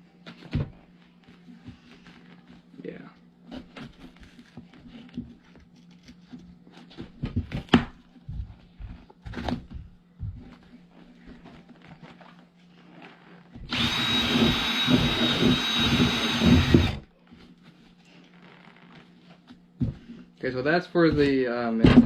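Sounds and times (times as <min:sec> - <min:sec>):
power drill running: 0:13.7 - 0:17.0.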